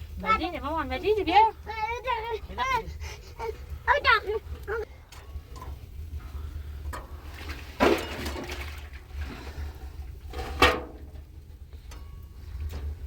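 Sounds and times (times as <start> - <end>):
water splashing into bath basin: 7.2 - 9.6.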